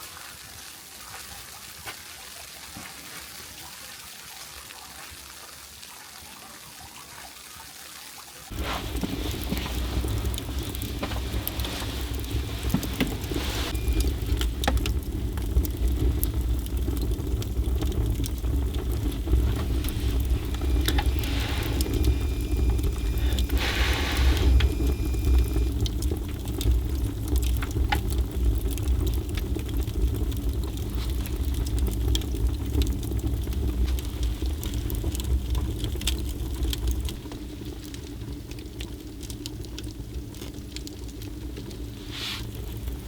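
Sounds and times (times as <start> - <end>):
fire hissing rushes: 8.5 - 43.0
wood fire crackling: 8.5 - 43.0.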